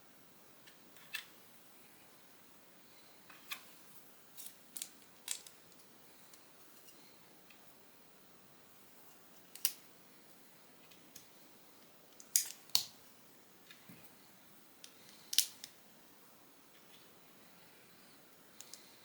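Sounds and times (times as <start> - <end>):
plastic bricks clicking together: 4.4 - 5.6, 14.8 - 15.8
faint ticks of pieces: 18.6 - 19.0.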